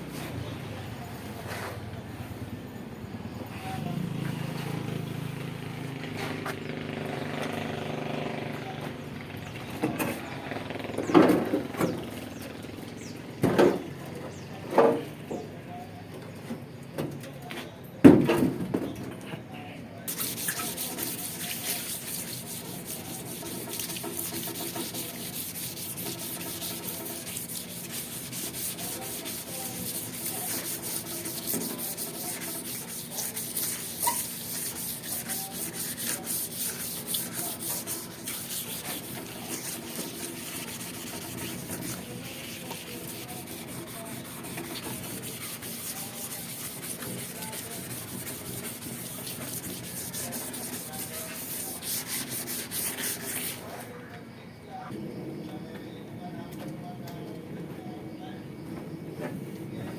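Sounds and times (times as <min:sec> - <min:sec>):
sandpaper rubbing on sheet metal: 0:20.1 - 0:53.9.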